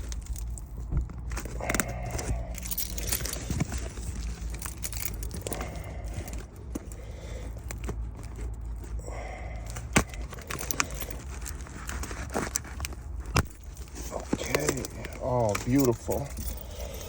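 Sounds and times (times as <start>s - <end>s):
packing tape cut with a key: 0.0s - 9.0s, 9.6s - 17.0s
steady low hum: 0.0s - 17.0s.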